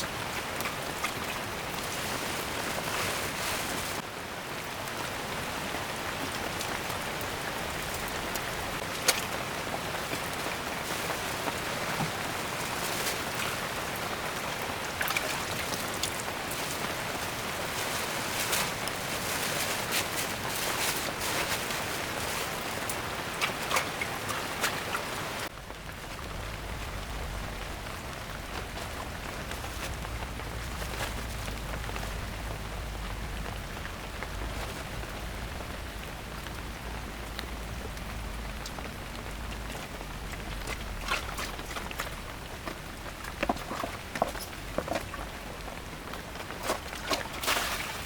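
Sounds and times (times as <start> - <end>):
rain falling: 0.0 - 48.0
low rumble: 25.5 - 43.2.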